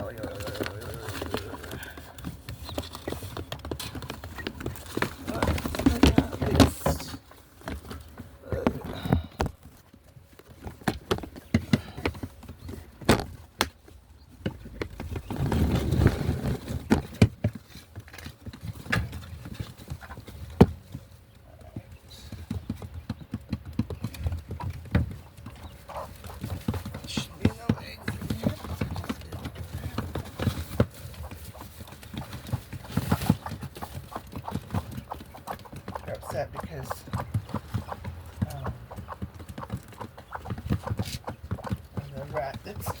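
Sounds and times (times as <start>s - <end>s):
rustling: 14.6s - 21.3s.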